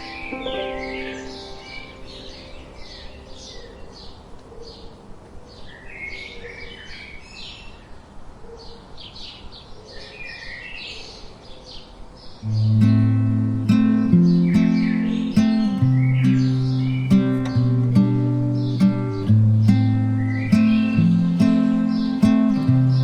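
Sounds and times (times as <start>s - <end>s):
gentle wind: 0.0s - 23.0s
songbirds chirping: 0.0s - 23.0s.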